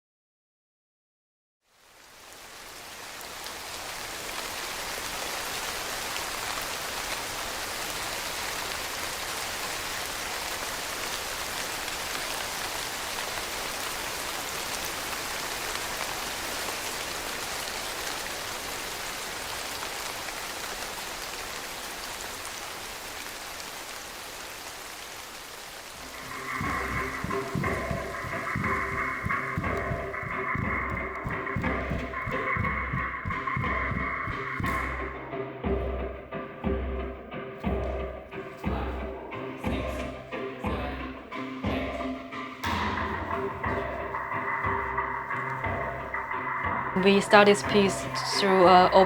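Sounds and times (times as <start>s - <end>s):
heavy rain: 1.7s - 35.5s, 42.3s - 49.0s.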